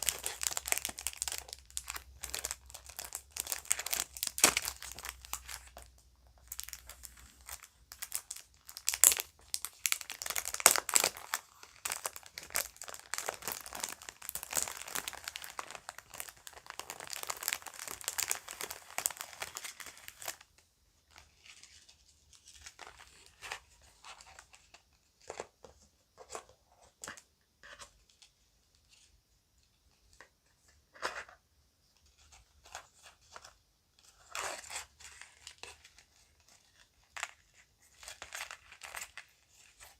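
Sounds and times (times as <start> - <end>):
bag crinkling and rustling: 0.0 - 20.4.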